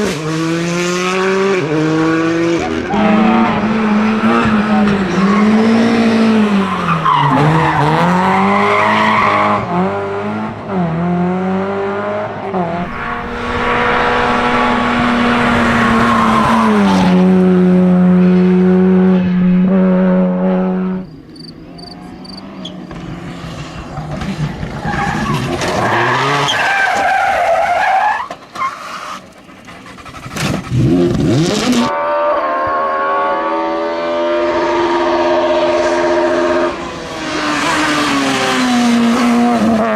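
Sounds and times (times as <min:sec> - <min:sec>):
rally car engines revving: 0:00.0 - 0:39.9
car sweeping past: 0:11.7 - 0:21.1
tyre skid noise: 0:12.7 - 0:17.8, 0:22.6 - 0:31.9.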